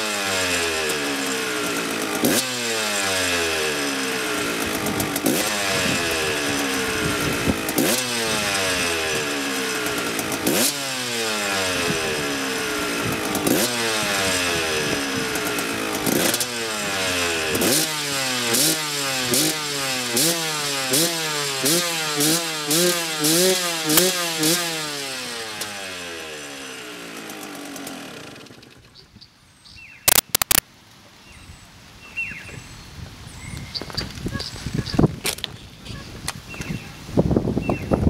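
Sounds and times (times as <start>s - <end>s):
dirt bike engine revving: 0.0s - 28.8s, 30.1s - 30.6s
sharp clicks: 30.1s - 30.6s.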